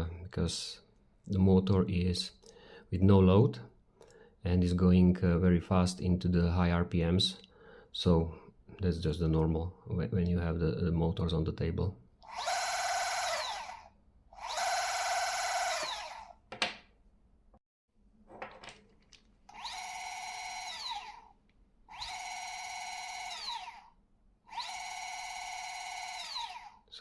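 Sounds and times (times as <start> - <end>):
electric motor whining: 12.3 - 16.3, 19.5 - 21.3, 21.9 - 23.9, 24.5 - 26.8.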